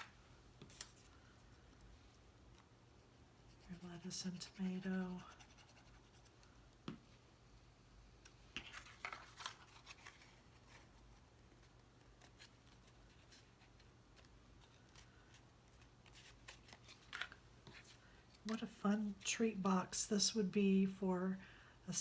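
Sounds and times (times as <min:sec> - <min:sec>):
cardstock rustling and clicking: 0:08.5 - 0:18.7.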